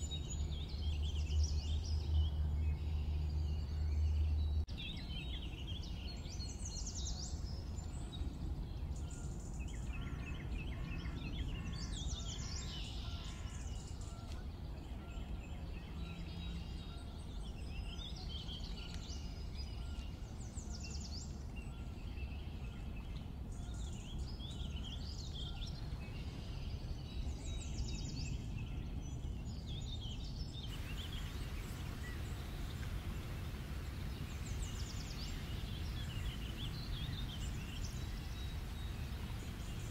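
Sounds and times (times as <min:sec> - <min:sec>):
birds singing and calling: 0:00.0 - 0:39.9
low rumble: 0:30.7 - 0:39.9
steady hiss: 0:30.7 - 0:39.9.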